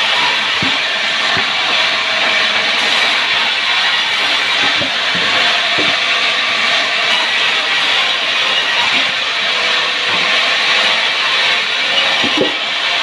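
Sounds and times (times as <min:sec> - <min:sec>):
power wood saw whirring: 0:00.0 - 0:13.0
dull knocks: 0:04.6 - 0:06.0.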